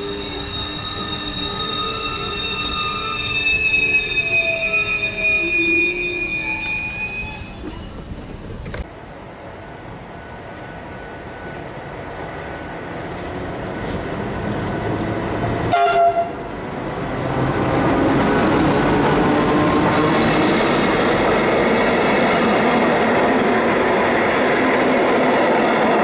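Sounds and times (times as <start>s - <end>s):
train wheels squealing: 0.0s - 8.8s
train rumbling: 0.0s - 26.0s
train horn toot: 15.7s - 16.5s.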